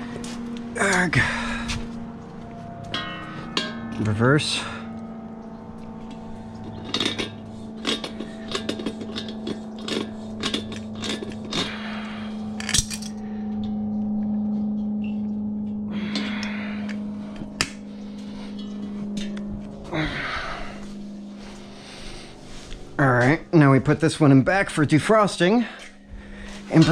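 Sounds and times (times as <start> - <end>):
steady low hum: 0.0 - 26.9
metal tools clinking and scraping: 6.5 - 11.7, 12.6 - 13.2.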